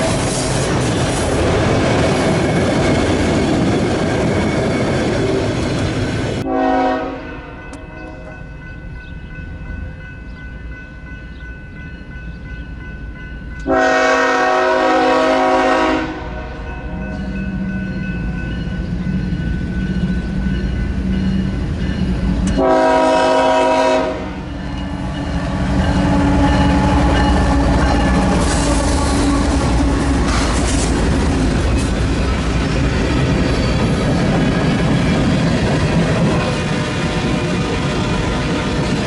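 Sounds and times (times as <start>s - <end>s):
moving train rumble: 0.0s - 39.0s
locomotive horn blasts: 6.4s - 8.4s, 13.6s - 17.0s, 22.5s - 24.5s.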